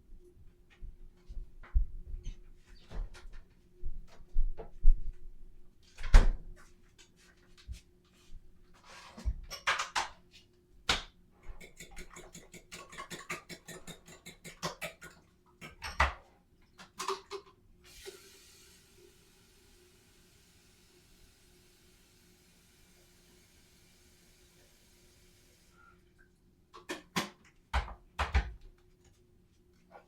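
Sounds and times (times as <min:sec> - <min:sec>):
dishes and utensils clicking: 0:11.6 - 0:16.1.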